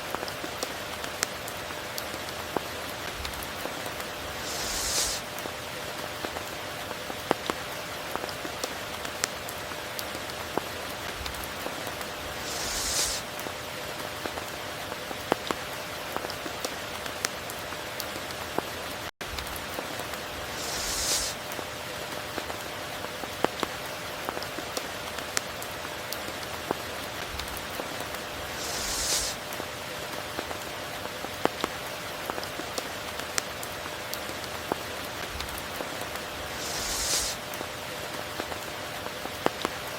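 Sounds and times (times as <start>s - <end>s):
raindrops striking close by: 0.0s - 39.9s
steady rain: 0.0s - 39.9s
hissing swell: 4.2s - 5.3s, 12.2s - 13.3s, 20.4s - 21.4s, 28.4s - 29.4s, 36.4s - 37.4s.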